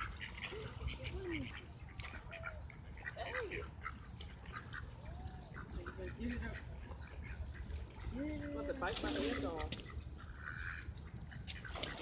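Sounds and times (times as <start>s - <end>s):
ducks calling: 0.0s - 12.0s.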